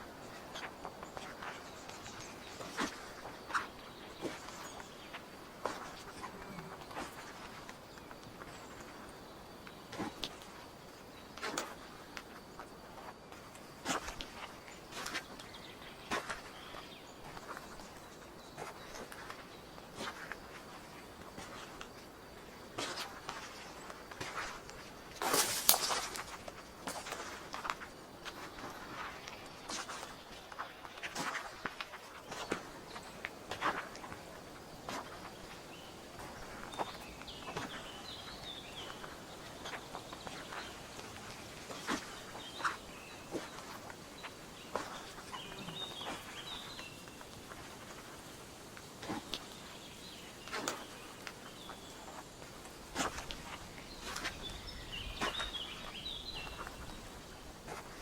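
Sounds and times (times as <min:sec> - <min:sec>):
faint hiss: 0:00.0 - 0:58.0
footsteps crunching on forest litter: 0:00.0 - 0:58.0
twig snapping: 0:25.2 - 0:26.3
bird chirping: 0:35.2 - 0:47.4, 0:53.4 - 0:57.2.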